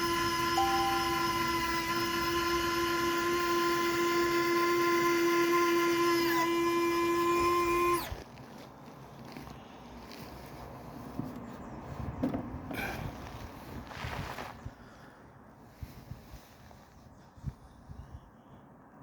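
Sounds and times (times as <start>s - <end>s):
model plane motor whine: 0.0s - 8.2s.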